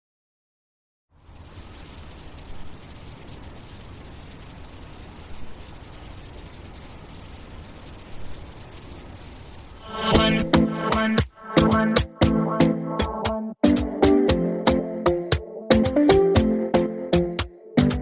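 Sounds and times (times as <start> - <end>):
crickets chirring: 1.1 - 12.2.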